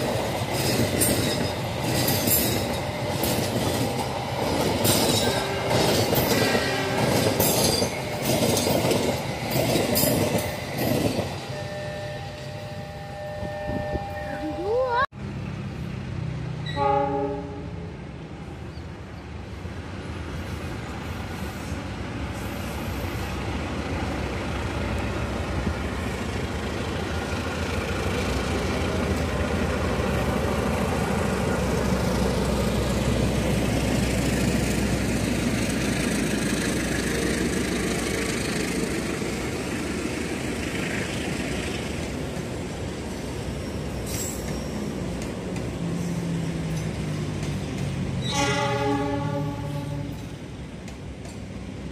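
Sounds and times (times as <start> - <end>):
train wheel noise: 0.0 - 15.0, 18.0 - 51.9
train horn blast: 11.5 - 14.5, 16.6 - 17.9, 48.2 - 50.3.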